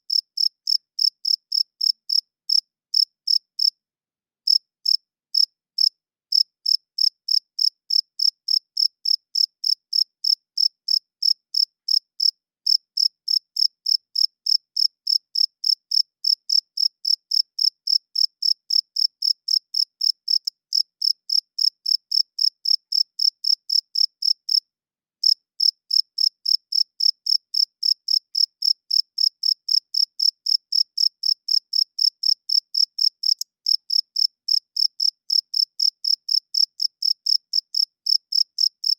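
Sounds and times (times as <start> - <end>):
cricket chirping: 0.1 - 3.7, 4.5 - 24.6, 25.2 - 38.9.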